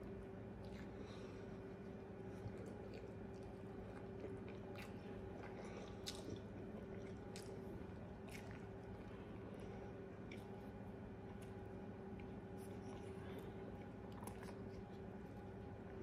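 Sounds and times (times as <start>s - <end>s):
chewing a sandwich: 0.0s - 16.0s
low room hum: 0.0s - 16.0s.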